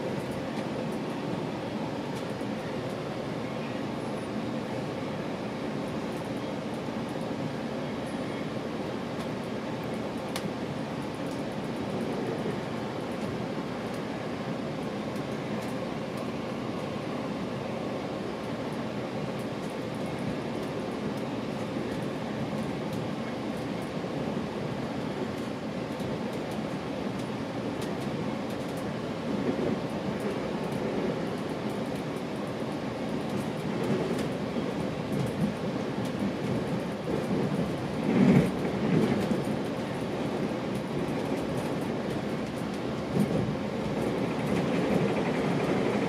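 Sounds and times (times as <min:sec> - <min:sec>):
train coach running noise: 0:00.0 - 0:46.0
faint light ticks: 0:10.2 - 0:10.5.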